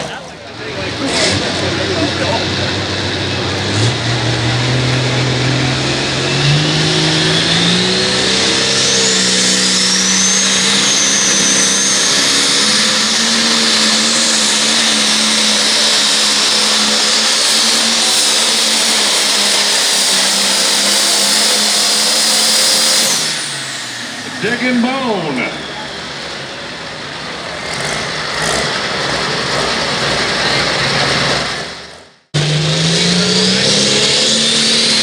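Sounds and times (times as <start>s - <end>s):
diesel tractor engine at full power: 0.0s - 35.0s
high turbo whistle: 3.8s - 27.0s.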